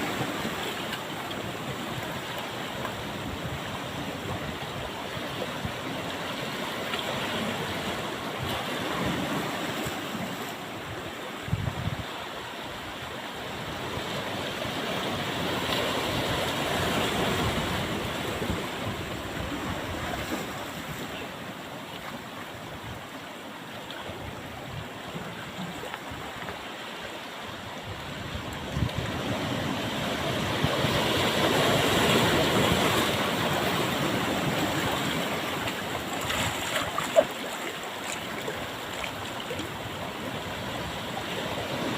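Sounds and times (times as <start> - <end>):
wind buffeting microphone: 11.4 - 12.2, 27.8 - 37.0
ocean surf breaking: 12.3 - 22.4, 24.4 - 41.9.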